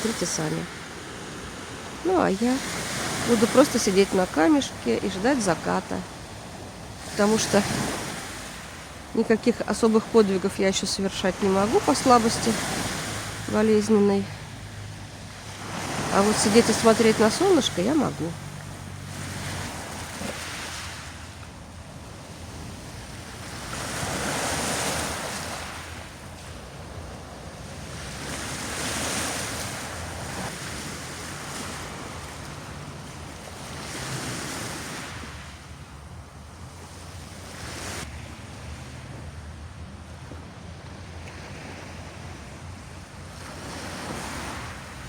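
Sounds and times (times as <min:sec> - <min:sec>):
waves washing onto pebbles: 0:00.0 - 0:35.4.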